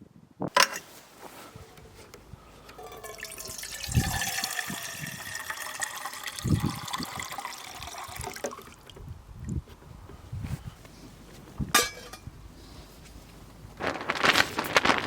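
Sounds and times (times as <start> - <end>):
water pouring with ringing pitch: 2.6 - 8.9.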